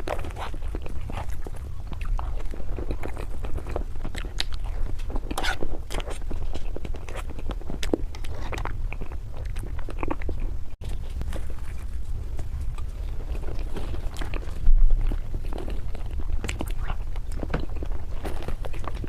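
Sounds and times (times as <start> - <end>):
small crunches and clicks: 0.0 - 19.0
steady low hum: 0.0 - 19.0
wet chewing mouth sounds: 0.0 - 19.0.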